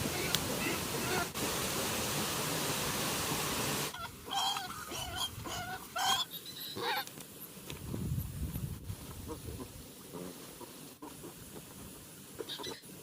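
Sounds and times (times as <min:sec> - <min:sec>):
chirping animal calls: 0:03.9 - 0:07.1, 0:12.4 - 0:13.0.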